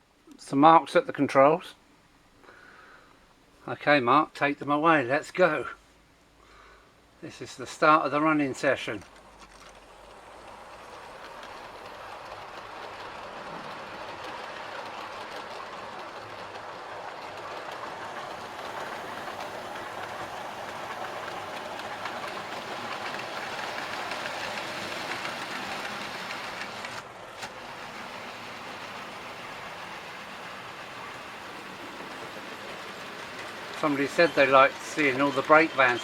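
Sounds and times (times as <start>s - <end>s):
model train wheels rattling on rails: 7.4s - 36.0s.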